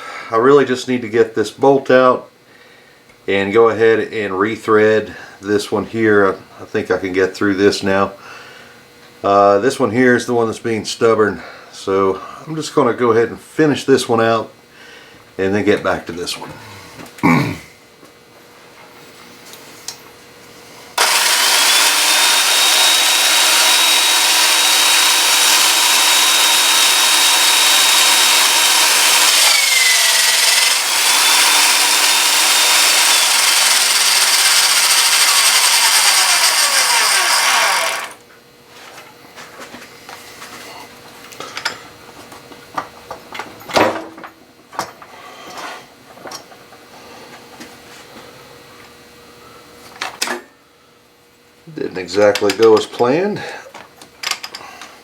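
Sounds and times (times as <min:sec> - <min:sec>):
electric drill whining: 0:21.0 - 0:38.2.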